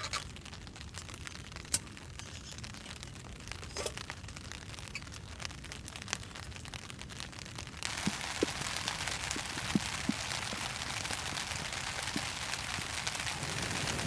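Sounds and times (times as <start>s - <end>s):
rain drops plinking on a surface: 0.0s - 14.0s
rain hiss: 7.6s - 14.0s.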